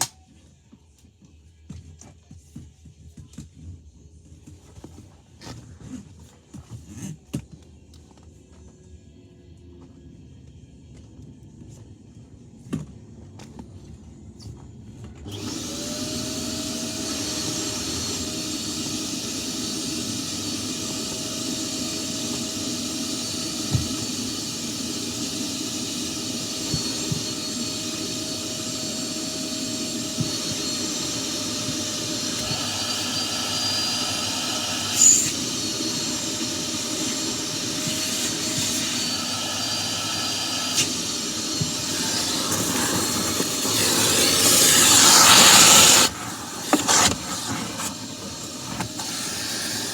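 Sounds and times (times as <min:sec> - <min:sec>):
vacuum cleaner running: 0:15.2 - 0:49.9.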